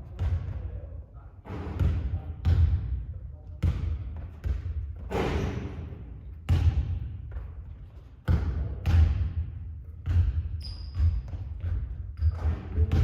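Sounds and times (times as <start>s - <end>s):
basketball bouncing on hard court: 0.0s - 0.8s, 1.5s - 3.0s, 3.6s - 13.0s
high squeak: 10.6s - 11.0s.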